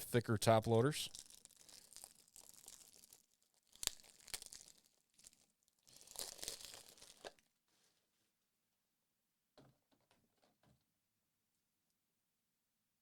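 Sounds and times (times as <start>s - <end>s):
plastic packaging rustling: 1.1s - 7.9s.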